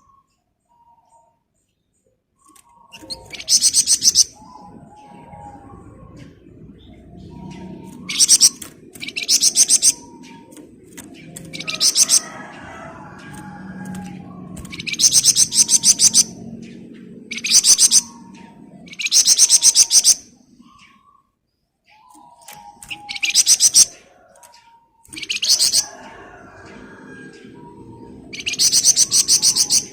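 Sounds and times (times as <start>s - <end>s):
songbird rattling trills: 7.4s - 16.4s, 22.1s - 24.0s.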